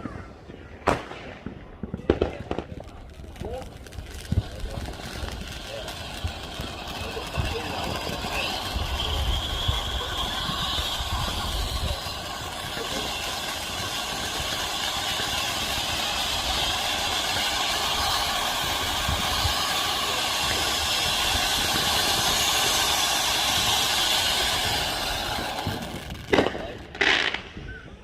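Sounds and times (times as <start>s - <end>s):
firework cracks: 0.8s - 27.8s
loud hissing rush: 3.5s - 26.9s.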